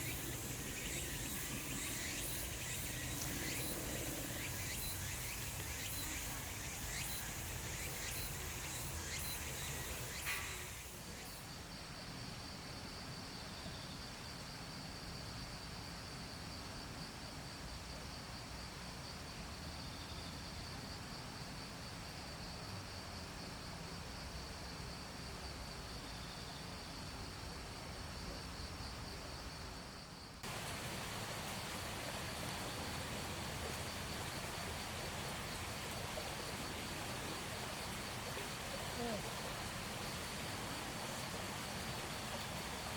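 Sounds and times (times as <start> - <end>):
insect pulsing trill: 0.0 - 11.6
dense insect hiss with ticks: 0.0 - 42.9.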